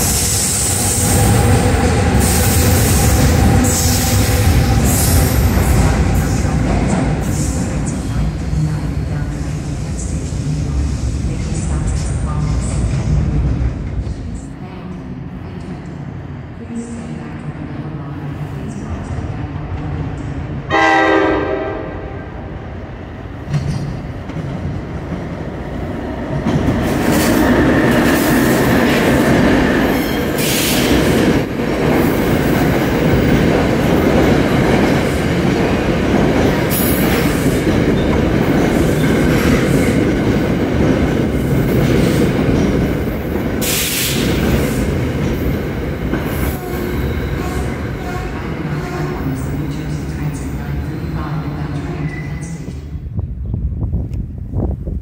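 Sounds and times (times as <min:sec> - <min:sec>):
train wheels rumbling on rails: 0:00.0 - 0:16.0, 0:23.3 - 0:55.0
train horn blast: 0:20.7 - 0:22.2.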